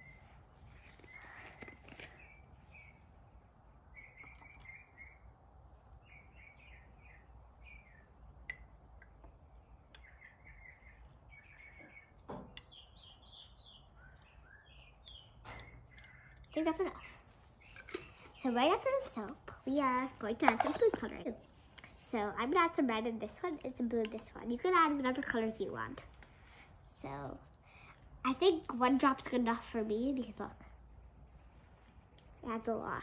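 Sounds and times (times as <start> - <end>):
small birds chirping: 0.0 - 22.4.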